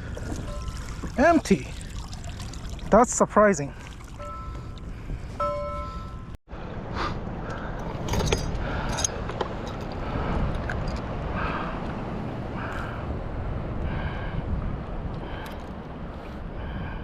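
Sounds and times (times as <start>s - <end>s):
water noise: 0.0s - 6.4s
wind buffeting microphone: 7.9s - 17.0s.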